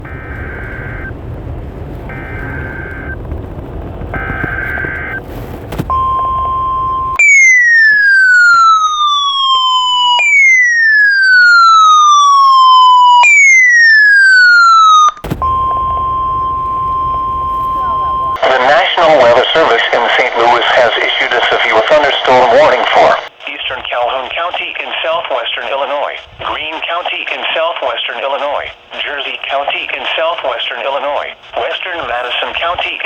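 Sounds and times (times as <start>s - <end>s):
digital header warble: 0.0s - 1.2s, 2.1s - 10.1s, 15.2s - 18.4s
steady warning alarm tone: 0.0s - 5.2s, 5.8s - 18.4s
radio hiss: 0.0s - 7.2s, 15.3s - 33.0s
falling siren-like sweeps: 6.0s - 18.4s.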